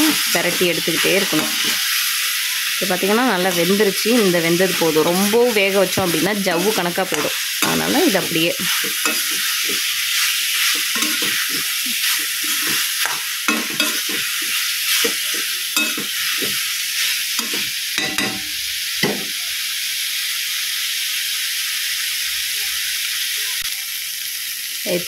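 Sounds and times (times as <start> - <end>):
meat sizzling in a pan: 0.0 - 25.0
spatula scraping a pan: 0.8 - 2.1, 3.4 - 18.6.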